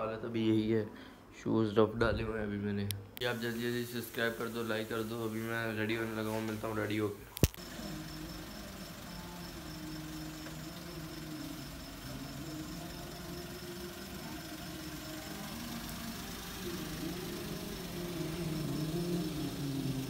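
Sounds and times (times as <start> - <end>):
car engine idling: 7.5 - 20.0.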